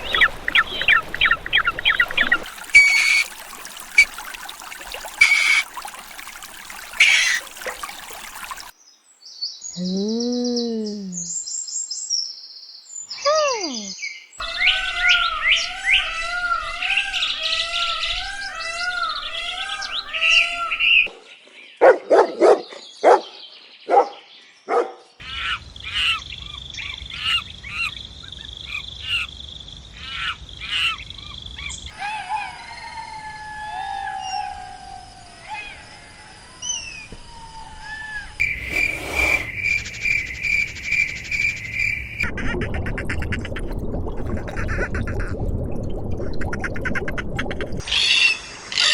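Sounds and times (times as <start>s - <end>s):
birds chirping and twittering: 0.0s - 4.3s, 5.0s - 5.7s, 6.8s - 29.3s, 36.5s - 42.2s
pulsing bird trill: 2.8s - 4.1s, 5.2s - 5.6s, 7.0s - 7.5s, 13.4s - 21.0s.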